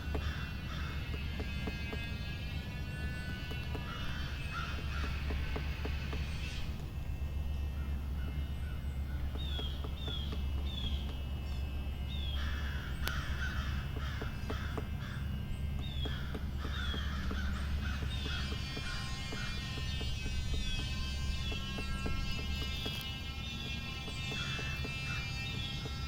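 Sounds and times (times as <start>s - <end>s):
harsh cawing calls: 0.0s - 6.8s, 12.1s - 26.0s
steady low rumble: 0.0s - 26.0s.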